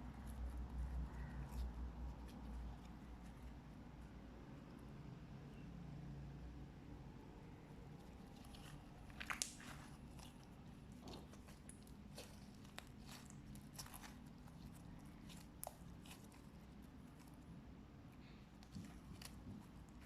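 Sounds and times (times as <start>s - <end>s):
slime crackling and clicking: 8.1s - 17.4s
slime popping: 8.2s - 17.3s.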